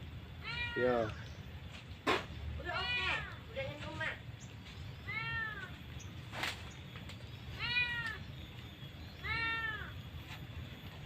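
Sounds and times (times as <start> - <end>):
cat meowing: 0.4 - 1.1, 5.0 - 5.8, 7.6 - 8.2, 9.2 - 9.9.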